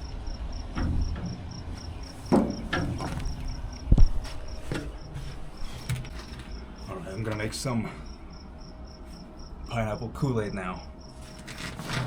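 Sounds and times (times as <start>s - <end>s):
knocks and thumps: 0.0s - 6.6s
cricket chirping: 0.0s - 12.0s.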